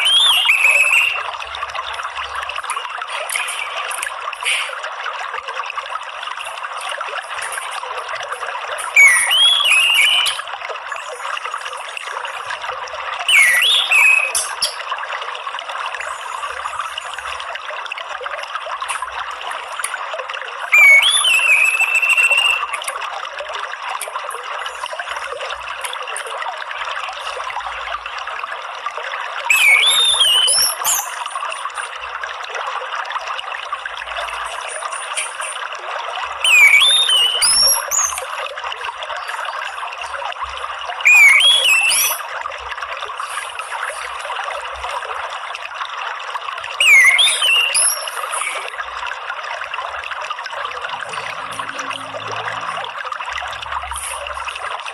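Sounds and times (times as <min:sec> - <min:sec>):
thrush whistling call: 0:00.0 - 0:01.3, 0:08.9 - 0:10.5, 0:13.2 - 0:14.8, 0:20.7 - 0:22.8, 0:29.5 - 0:31.3, 0:36.4 - 0:38.2, 0:41.0 - 0:42.3, 0:46.8 - 0:48.6
water trickling: 0:00.0 - 0:54.9.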